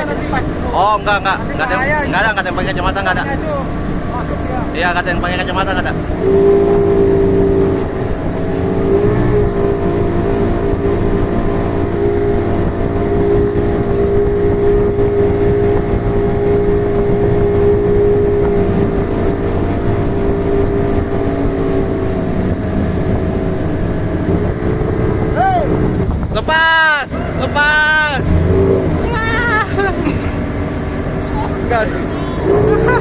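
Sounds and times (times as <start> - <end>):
low rushing water: 0.0 - 33.0
motorboat engine running: 0.0 - 33.0.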